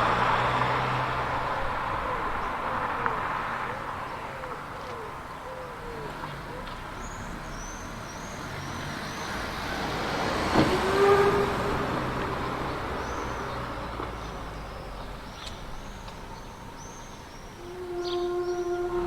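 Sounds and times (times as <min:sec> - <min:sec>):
vehicle passing by: 0:00.0 - 0:19.0
brief squeal: 0:17.6 - 0:19.0.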